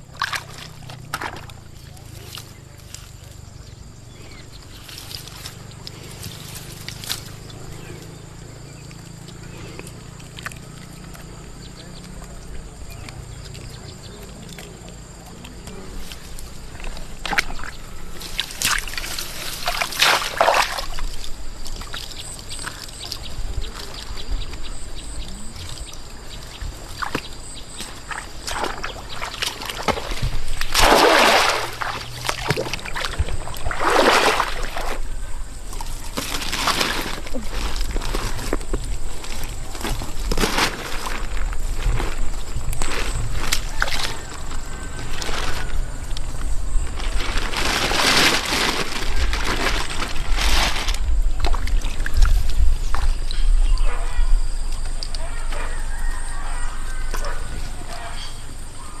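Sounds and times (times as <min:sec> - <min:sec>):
water sloshing and splashing: 0:00.0 - 0:02.6, 0:15.5 - 0:53.4.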